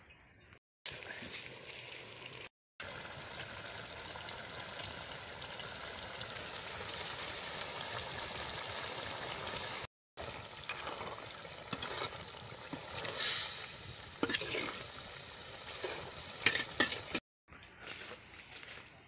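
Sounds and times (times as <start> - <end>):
curry simmering and sizzling in pot: 0.9 - 17.2
spoon scraping a pot: 10.6 - 13.3, 14.2 - 14.8, 15.7 - 17.2.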